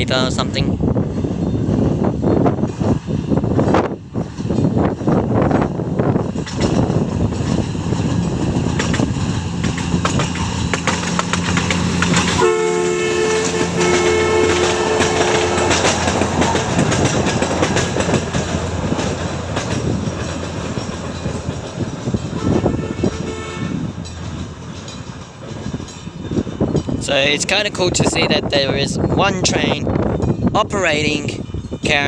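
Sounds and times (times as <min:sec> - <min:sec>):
ride train on rails: 0:00.0 - 0:32.0
train engine humming: 0:00.3 - 0:29.2, 0:29.8 - 0:31.8
two-note horn blasts: 0:12.3 - 0:15.9, 0:22.4 - 0:23.9.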